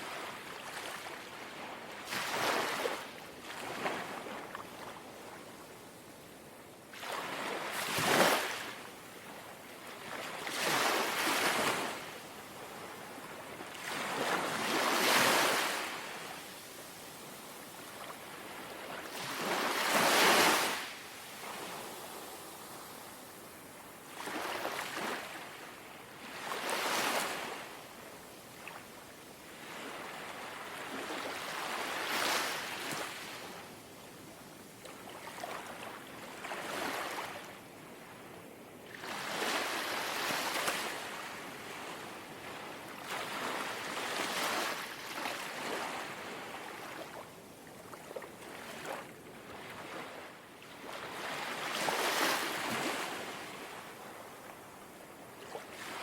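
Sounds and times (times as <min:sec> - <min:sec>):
sea waves lapping on shore: 0:00.0 - 0:05.0, 0:17.8 - 0:27.7, 0:38.9 - 0:54.4, 0:55.2 - 0:56.0.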